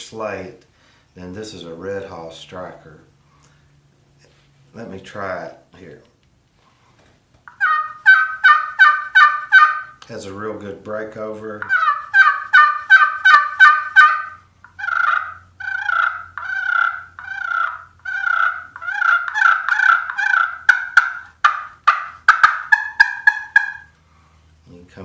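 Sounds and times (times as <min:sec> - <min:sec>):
turkey call hen yelps: 0:07.5 - 0:10.0, 0:11.6 - 0:24.0.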